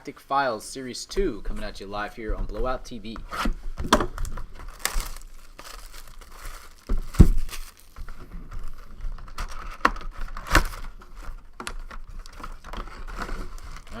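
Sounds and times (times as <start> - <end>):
foil wrappers crinkling: 4.0 - 11.4.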